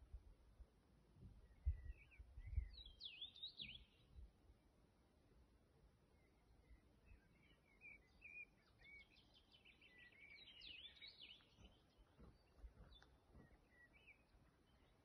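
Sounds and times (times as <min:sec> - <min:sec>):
faint birdsong: 0:01.0 - 0:15.0.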